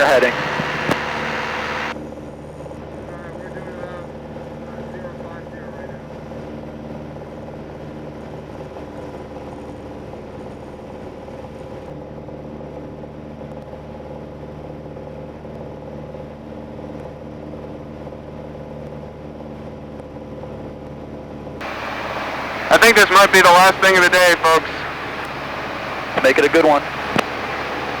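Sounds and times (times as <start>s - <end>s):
airplane cabin engine drone: 0.0s - 2.0s, 21.6s - 28.0s.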